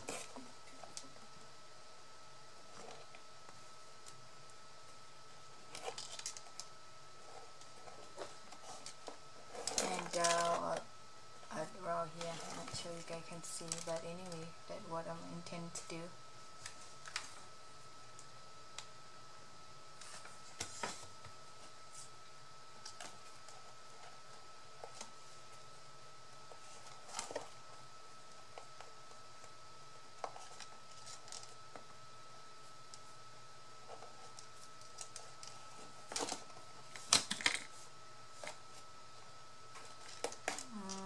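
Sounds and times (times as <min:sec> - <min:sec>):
faint high-pitched hum: 0:00.0 - 0:41.0.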